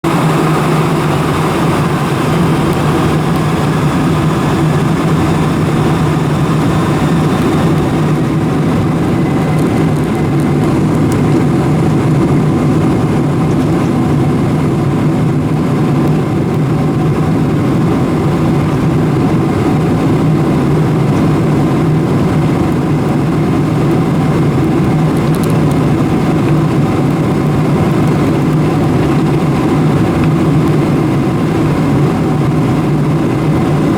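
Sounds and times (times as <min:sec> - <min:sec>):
engine and airframe rushing hiss: 0:00.0 - 0:09.5
airliner cabin hum: 0:00.0 - 0:33.9.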